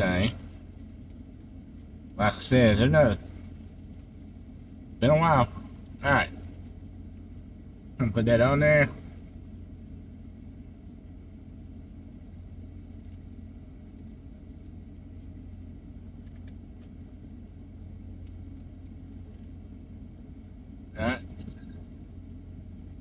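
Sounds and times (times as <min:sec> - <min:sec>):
faint clicks and rustles: 0:00.3 - 0:02.2, 0:03.1 - 0:05.0, 0:05.6 - 0:07.9, 0:11.6 - 0:20.6, 0:21.4 - 0:23.0.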